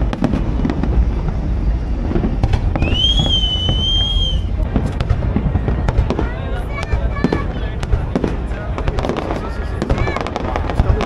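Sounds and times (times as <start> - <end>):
fireworks booming and crackling: 0.0 - 11.0
sharp firework bangs: 0.0 - 11.0
high whistle: 2.7 - 4.5.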